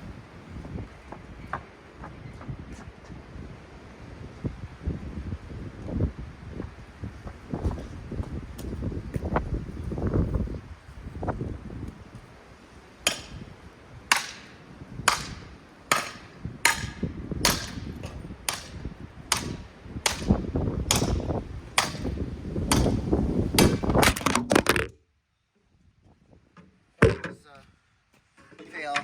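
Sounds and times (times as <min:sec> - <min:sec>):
hard blows smashing fan: 0:13.0 - 0:24.6.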